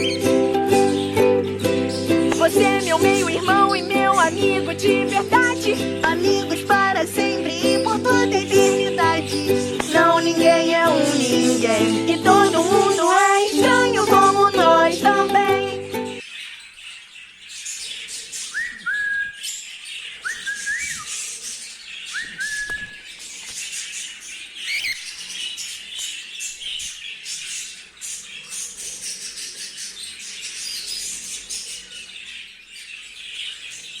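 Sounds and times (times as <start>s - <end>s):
cockatiel whistling: 0.0s - 2.3s, 18.4s - 19.6s, 20.2s - 21.2s, 22.1s - 23.1s, 24.6s - 25.2s
cage birds chirping: 0.0s - 34.0s.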